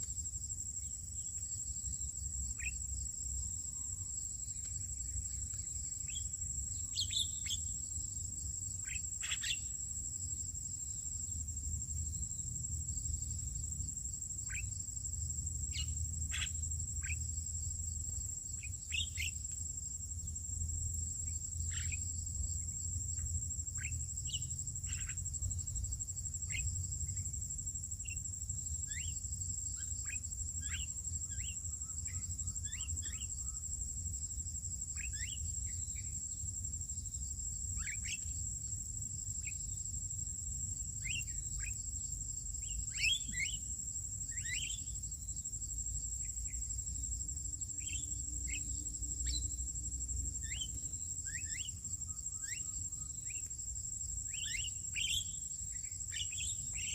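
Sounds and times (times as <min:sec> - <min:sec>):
insect drone: 0:00.0 - 0:56.9
bird chirps: 0:04.6 - 0:07.8, 0:08.8 - 0:09.8, 0:42.6 - 0:43.6, 0:44.3 - 0:45.0, 0:47.8 - 0:49.5, 0:50.4 - 0:53.5, 0:54.3 - 0:56.9.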